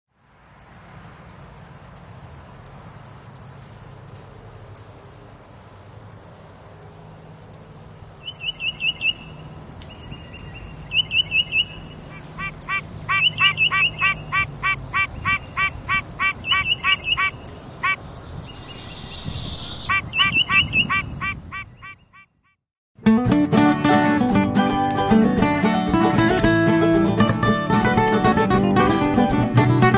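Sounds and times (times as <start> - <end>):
high-pitched insect buzz: 0.1 - 22.3
tree frog calling: 0.1 - 22.6
bird chirping: 6.8 - 22.6.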